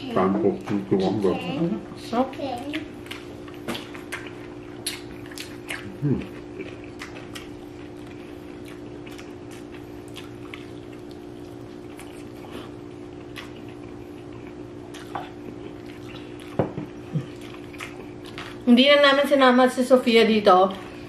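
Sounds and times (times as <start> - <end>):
steady low hum: 0.0 - 21.0
wet chewing and mouth smacks: 2.2 - 18.7.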